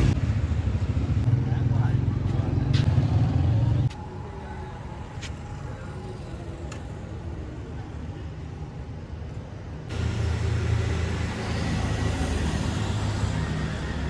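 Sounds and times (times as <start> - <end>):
low engine-like drone: 0.0 - 14.0
roadside traffic: 0.0 - 14.0.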